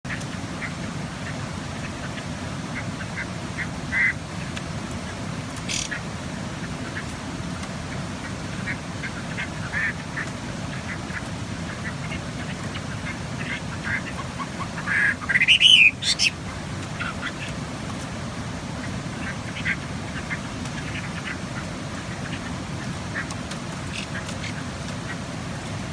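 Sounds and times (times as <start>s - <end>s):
bird giving harsh calls: 5.7s - 6.0s, 13.5s - 16.4s.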